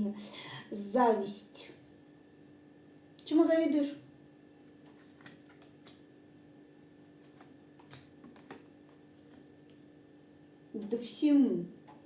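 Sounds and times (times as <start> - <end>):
low room hum: 0.0 - 12.0
cards being handled: 4.6 - 6.0, 7.1 - 9.5.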